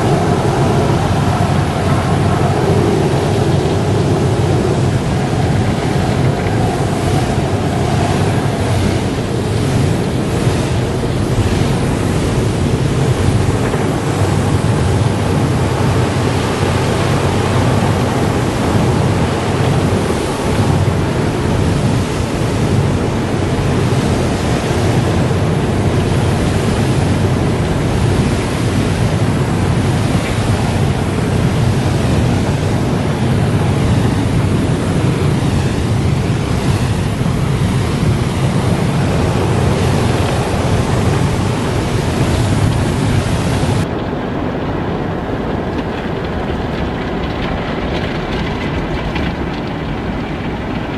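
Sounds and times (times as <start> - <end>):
low rumble: 0.0 - 19.4
car wash rushing noise: 0.0 - 50.9.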